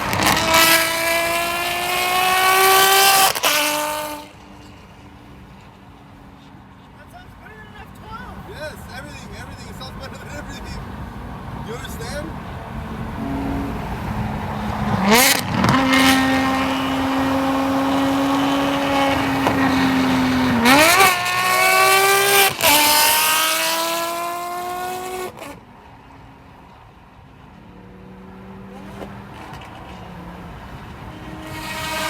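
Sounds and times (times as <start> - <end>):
sports car engine revving: 0.0 - 5.7, 8.8 - 25.6, 27.5 - 32.0.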